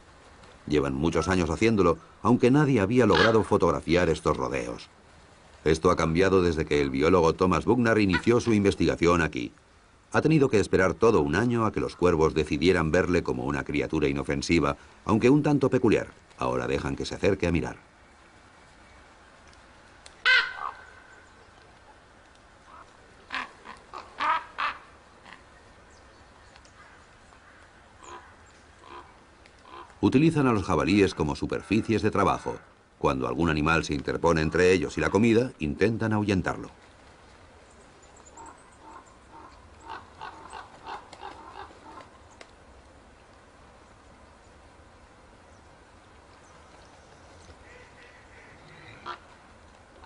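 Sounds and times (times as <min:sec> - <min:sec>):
ravens calling: 0:00.8 - 0:04.8, 0:07.8 - 0:08.8, 0:20.1 - 0:32.8, 0:34.1 - 0:35.8, 0:37.6 - 0:42.5, 0:46.4 - 0:50.0
short animal calls: 0:03.1 - 0:03.5, 0:20.2 - 0:21.1, 0:22.7 - 0:25.5, 0:26.8 - 0:30.0, 0:47.6 - 0:49.3.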